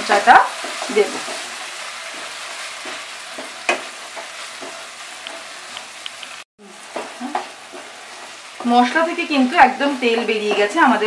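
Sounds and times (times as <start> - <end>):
oil sizzling in a pan: 0.0 - 11.0
spatula scraping a pan: 0.6 - 5.6, 6.8 - 8.9.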